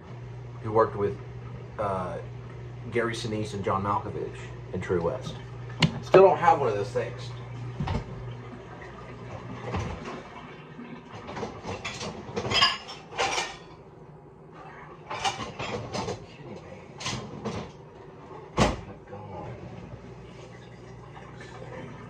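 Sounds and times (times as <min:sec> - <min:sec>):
clattering in a kitchen cupboard: 0:11.2 - 0:13.7, 0:15.1 - 0:16.3.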